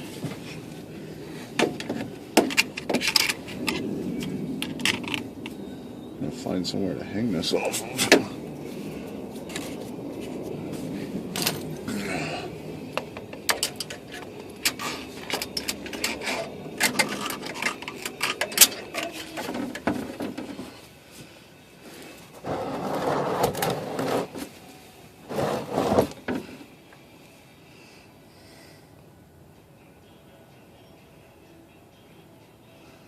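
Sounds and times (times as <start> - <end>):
tools clicking and knocking: 13.2 - 20.6
scraping or rustling: 13.6 - 20.8, 21.9 - 24.6, 25.2 - 26.4.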